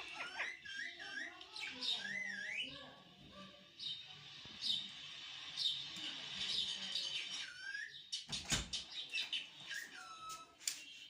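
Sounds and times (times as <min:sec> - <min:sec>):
parrot chirping and squeaking: 0:00.0 - 0:02.8, 0:09.4 - 0:10.5.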